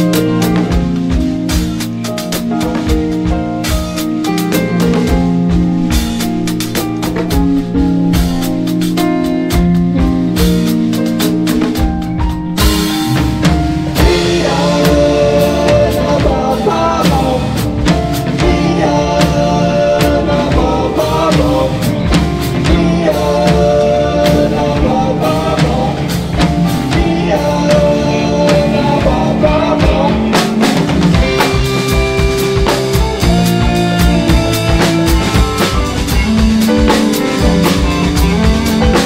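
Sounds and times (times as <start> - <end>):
bass: 0.0 - 39.0
drum kit with snare hits: 0.0 - 39.0
electric guitar: 0.0 - 39.0
piano: 0.0 - 39.0.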